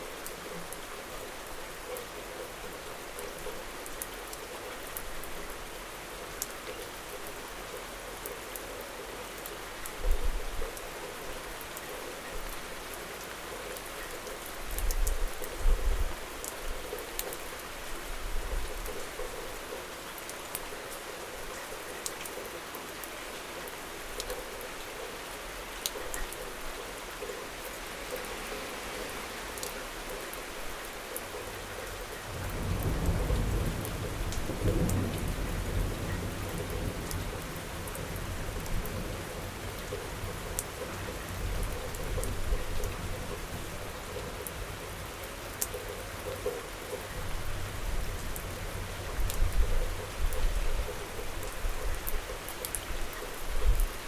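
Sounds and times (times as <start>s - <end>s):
raindrops hitting close by: 0.0s - 54.0s
steady rain hissing: 0.0s - 54.0s
low thunder rumble: 32.3s - 40.3s.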